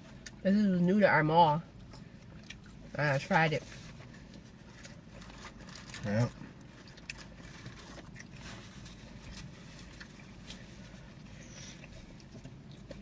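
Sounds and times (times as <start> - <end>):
low background hum: 0.0 - 13.0
people chewing: 4.0 - 13.0.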